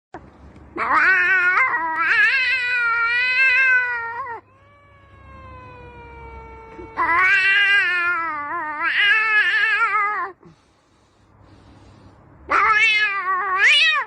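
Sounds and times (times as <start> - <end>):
cat-like yowls: 0.8 - 10.4, 12.5 - 14.0.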